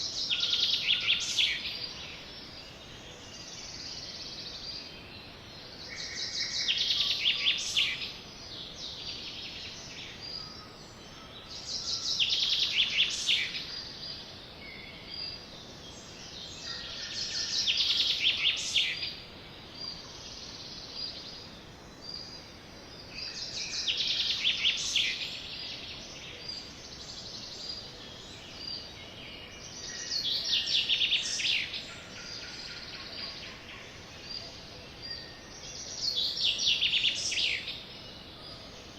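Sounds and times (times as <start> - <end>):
sparrow singing: 23.2 - 38.9.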